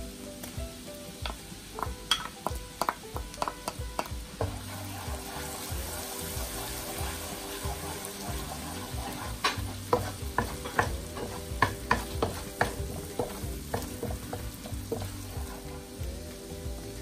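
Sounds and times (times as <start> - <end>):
ginger sizzling in butter: 0.0 - 17.0
spoon knocking: 1.2 - 4.2
wooden spoon stirring: 2.5 - 16.0.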